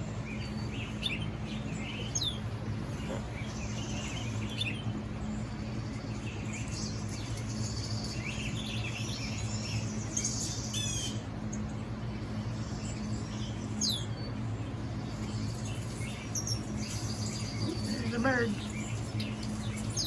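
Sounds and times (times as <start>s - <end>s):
birds chirping through phone speaker: 0.0s - 5.4s, 16.0s - 20.0s
steady low hum: 0.0s - 20.0s.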